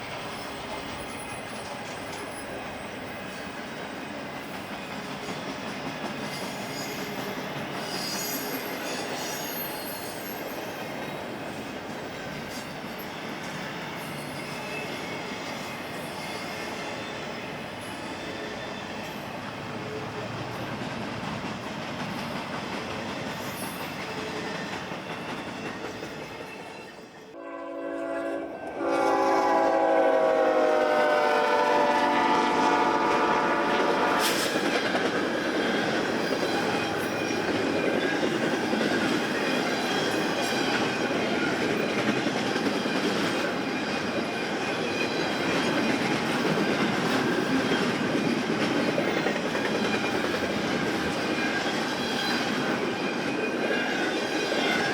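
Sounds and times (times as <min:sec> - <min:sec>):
train wheels rumbling on rails: 0:00.0 - 0:54.9
locomotive air horn: 0:27.4 - 0:34.5.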